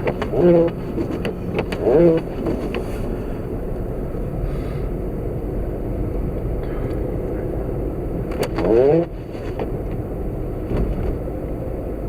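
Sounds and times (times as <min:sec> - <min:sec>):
windshield wipers squealing: 0:00.0 - 0:03.8, 0:08.3 - 0:10.1
road and wind noise in car: 0:00.0 - 0:12.0.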